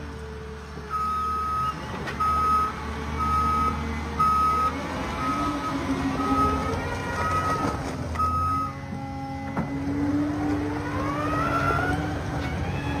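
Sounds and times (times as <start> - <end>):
reversing alarm beeping: 0.9 - 8.8
vehicle engine revving: 2.2 - 13.0.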